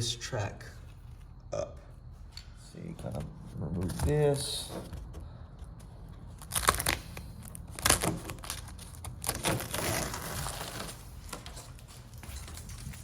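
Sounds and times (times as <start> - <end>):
scraping and tearing: 6.3 - 13.0.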